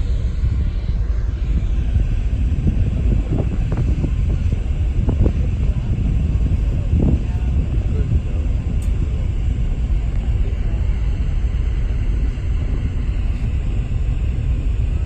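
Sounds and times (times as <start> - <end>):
ship engine running noise: 0.0 - 15.0
wind on microphone: 0.0 - 15.0.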